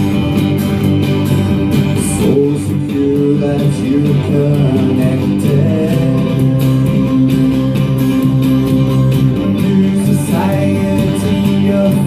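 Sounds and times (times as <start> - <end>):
guitar-led live band music: 0.0 - 12.0
person singing: 2.0 - 8.1, 9.3 - 12.0.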